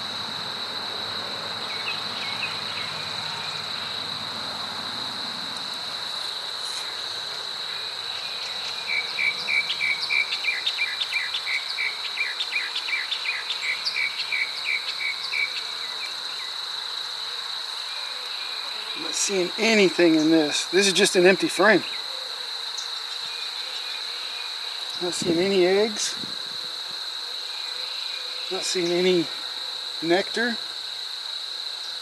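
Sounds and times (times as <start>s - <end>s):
insects trilling: 0.0s - 32.0s.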